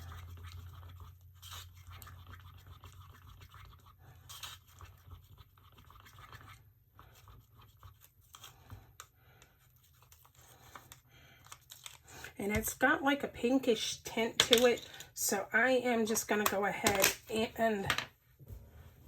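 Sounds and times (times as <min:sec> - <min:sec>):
scrapes and taps in a cup: 0:00.0 - 0:06.6.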